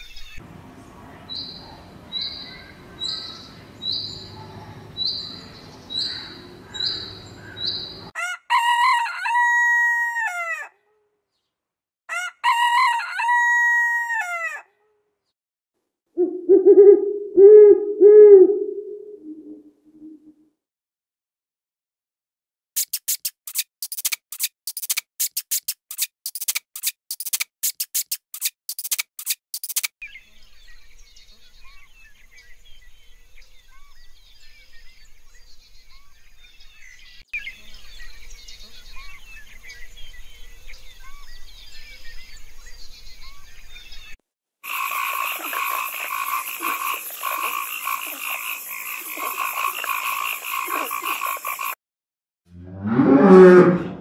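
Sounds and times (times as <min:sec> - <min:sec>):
chorus of short chirps: 0:22.8 - 0:29.9, 0:44.6 - 0:51.8
rapid sharp animal clicks: 0:22.8 - 0:29.9
loud pulsing animal chorus: 0:44.6 - 0:51.8.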